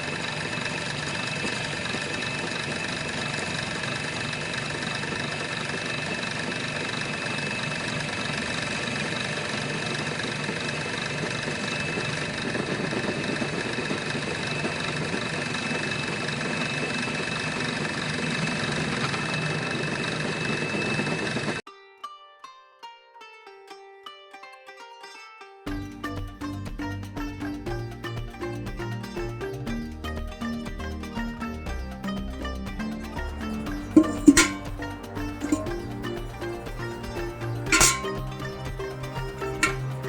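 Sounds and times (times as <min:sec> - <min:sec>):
mechanical rattle: 0:33.8 - 0:34.8, 0:37.7 - 0:38.4, 0:39.3 - 0:40.0.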